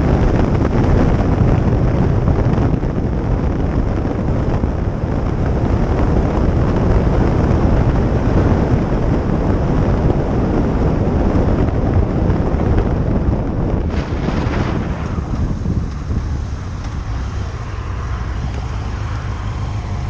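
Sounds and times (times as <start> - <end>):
wind rush on microphone: 0.0 - 20.0
motorcycle engine running: 11.8 - 20.0.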